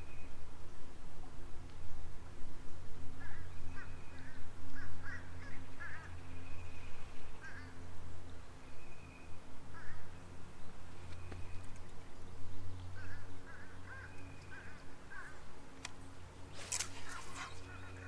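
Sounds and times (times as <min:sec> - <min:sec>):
steady low hum: 0:00.0 - 0:18.0
bird calling: 0:03.2 - 0:07.8, 0:08.7 - 0:10.2, 0:11.0 - 0:15.5, 0:16.4 - 0:18.0.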